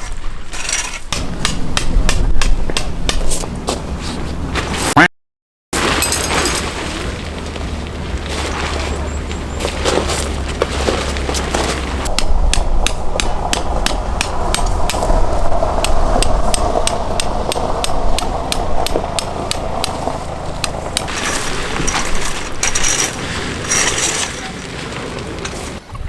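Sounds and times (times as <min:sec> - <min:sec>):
hammer strikes: 0:00.7 - 0:03.6, 0:12.0 - 0:21.2
rustling: 0:05.8 - 0:12.1, 0:20.0 - 0:25.8.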